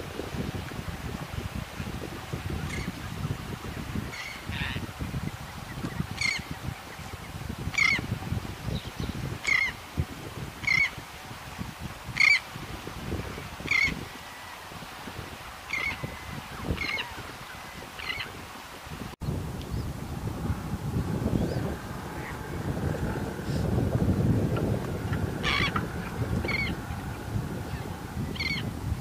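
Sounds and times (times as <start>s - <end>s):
bird calling: 4.1s - 8.0s, 8.8s - 9.8s, 10.6s - 11.0s, 13.6s - 14.7s, 15.6s - 18.4s, 25.1s - 27.1s, 27.7s - 28.7s
low uneven rumble: 19.4s - 29.0s.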